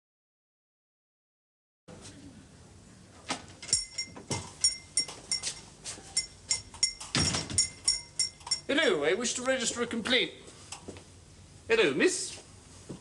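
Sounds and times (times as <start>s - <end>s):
light metallic clinking: 3.6s - 8.8s.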